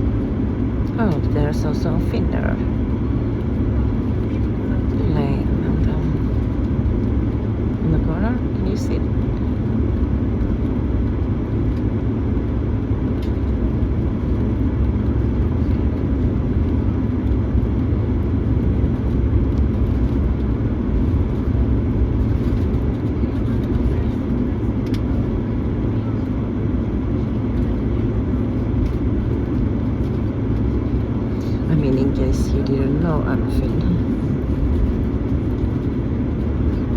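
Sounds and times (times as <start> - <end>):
vehicle engine rumbling: 0.0 - 36.9.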